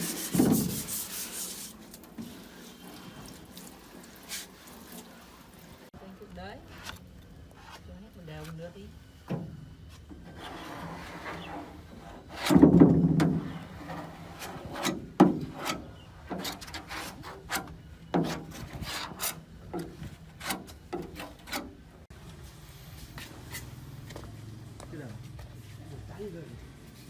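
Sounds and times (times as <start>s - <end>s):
scraping on car body part: 0.0s - 2.8s.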